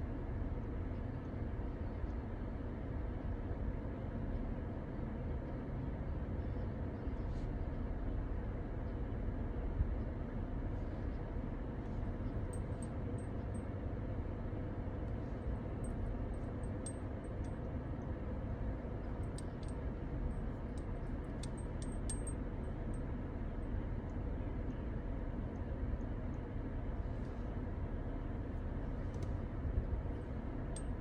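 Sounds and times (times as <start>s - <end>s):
vehicle rumble: 2.6s - 31.0s
faint light clinks: 19.0s - 23.0s, 30.7s - 31.0s.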